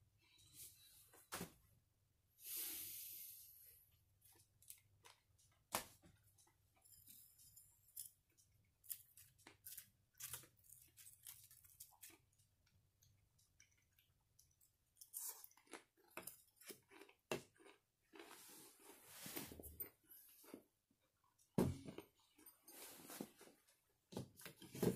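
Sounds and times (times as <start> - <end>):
person chewing crunchy food: 7.9 - 19.0.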